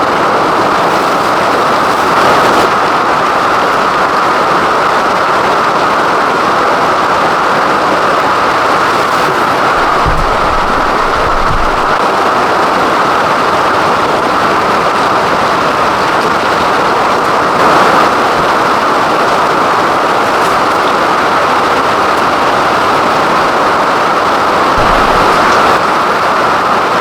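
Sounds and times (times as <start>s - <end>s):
heavy rain pouring: 0.0s - 27.0s
low rumble: 9.8s - 12.0s, 24.8s - 25.8s.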